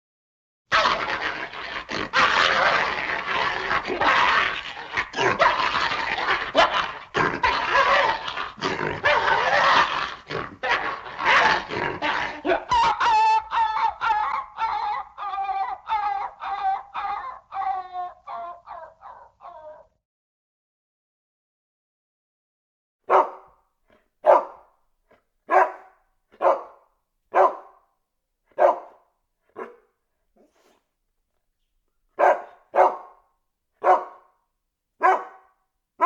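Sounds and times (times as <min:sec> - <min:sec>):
dog making rough noisy sounds: 0:00.7 - 0:12.8, 0:23.1 - 0:23.5, 0:24.2 - 0:24.6, 0:25.5 - 0:27.8, 0:28.5 - 0:30.8, 0:32.2 - 0:33.2, 0:33.8 - 0:34.3, 0:35.0 - 0:35.5
dog yelping: 0:23.1 - 0:23.5, 0:24.2 - 0:24.6, 0:25.5 - 0:26.8, 0:27.4 - 0:27.7, 0:28.6 - 0:29.0, 0:29.6 - 0:29.8, 0:32.2 - 0:33.2, 0:33.8 - 0:34.2, 0:35.0 - 0:35.5.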